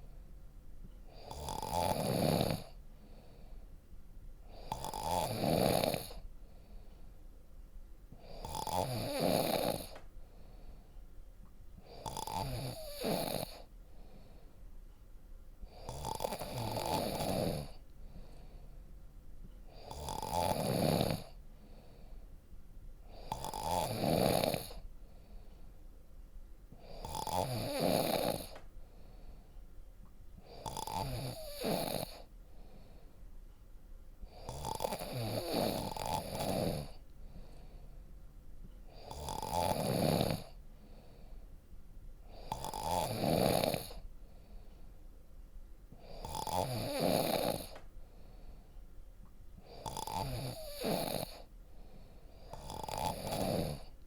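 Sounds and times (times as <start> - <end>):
quiet breathing: 0.0 - 54.0
person snoring: 1.1 - 3.5, 4.5 - 6.2, 8.2 - 10.0, 11.8 - 13.7, 15.7 - 18.5, 19.7 - 22.0, 23.1 - 24.8, 26.8 - 28.6, 30.4 - 32.3, 34.3 - 37.8, 38.9 - 41.3, 42.3 - 44.0, 46.0 - 48.3, 49.6 - 51.5, 52.2 - 54.0.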